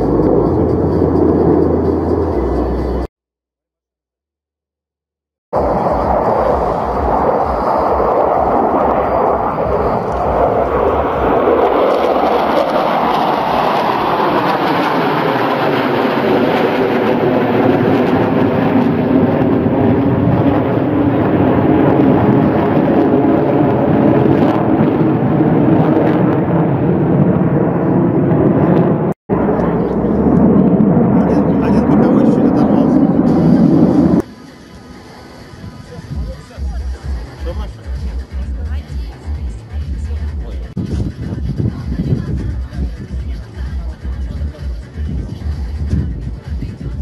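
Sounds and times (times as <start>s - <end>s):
jet engines flying past: 0.0s - 3.1s, 5.6s - 47.0s.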